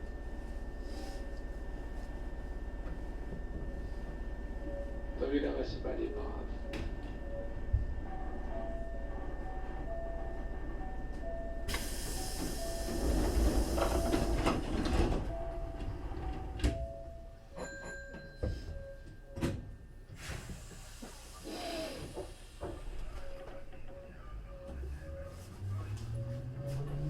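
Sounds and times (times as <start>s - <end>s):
air hiss: 11.7s - 14.3s.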